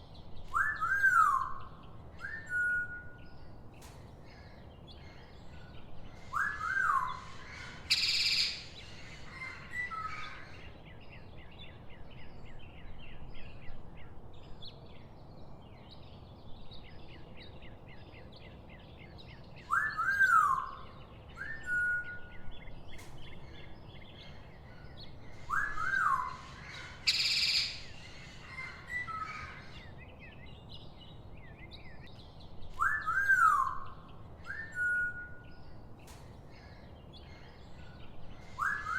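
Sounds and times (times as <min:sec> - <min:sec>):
arched bird whistles: 0:21.4 - 0:22.4, 0:25.5 - 0:26.5, 0:32.7 - 0:33.9, 0:34.5 - 0:35.4, 0:38.6 - 0:38.9.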